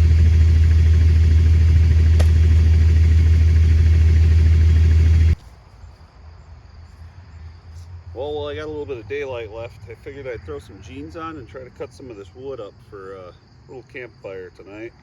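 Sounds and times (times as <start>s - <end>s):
engine droning: 0.0s - 5.4s.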